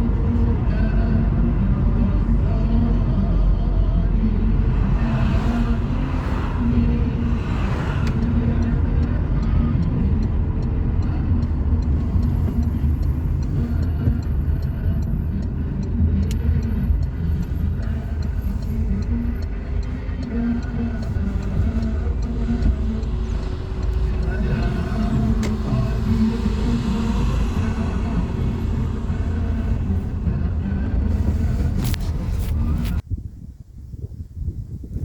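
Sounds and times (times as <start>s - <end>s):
vehicle engine and road noise: 0.0s - 35.0s
fast regular ticking: 8.0s - 32.3s.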